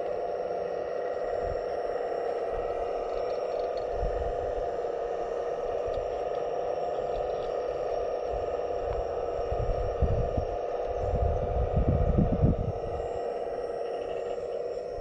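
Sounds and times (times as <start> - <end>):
hydraulic pump whining: 0.0 - 15.0.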